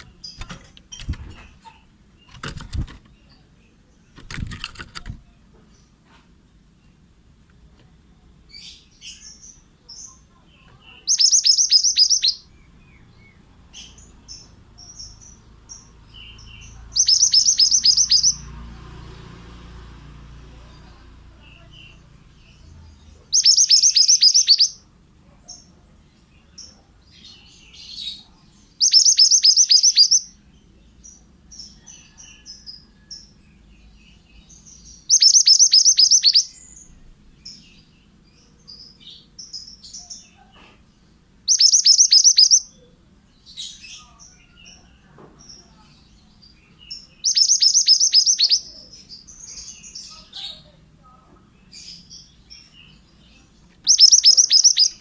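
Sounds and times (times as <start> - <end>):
bird singing trilled phrases: 8.2 - 18.5, 20.7 - 24.9, 25.5 - 55.0.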